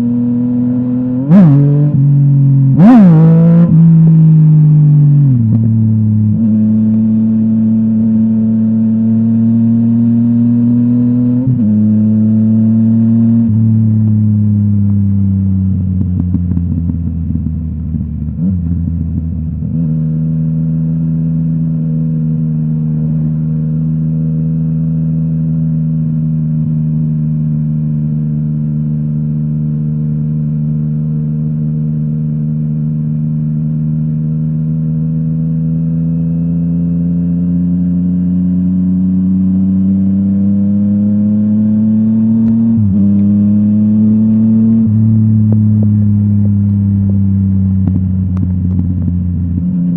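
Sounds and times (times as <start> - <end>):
motorcycle engine running: 0.0 - 40.2, 40.9 - 49.9.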